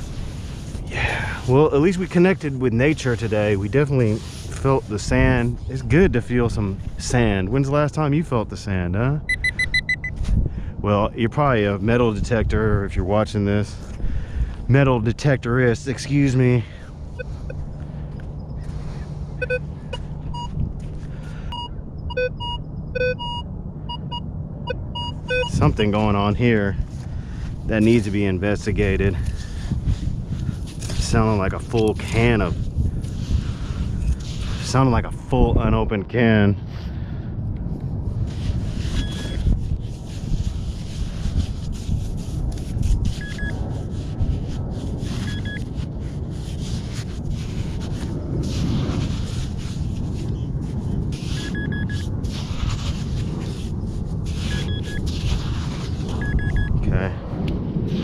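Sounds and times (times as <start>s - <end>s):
steady low rumble: 0.0s - 58.0s
metal detector beeps: 9.3s - 10.2s, 17.1s - 17.6s, 19.4s - 20.6s, 21.5s - 25.7s, 39.0s - 39.4s, 43.2s - 43.6s, 45.2s - 45.7s, 51.3s - 52.1s, 54.4s - 55.1s, 56.2s - 56.7s.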